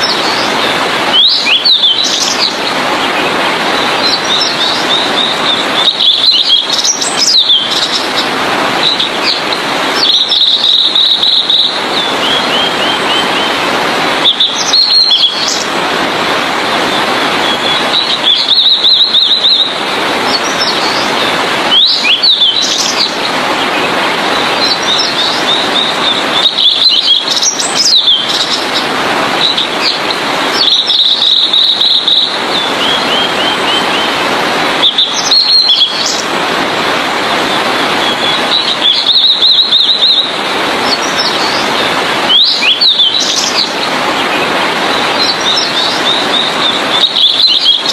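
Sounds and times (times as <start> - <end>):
flycatcher singing: 3.8 - 8.2, 8.8 - 13.6, 14.2 - 15.7, 29.4 - 34.2, 34.8 - 36.3, 38.0 - 43.9, 45.0 - 47.9.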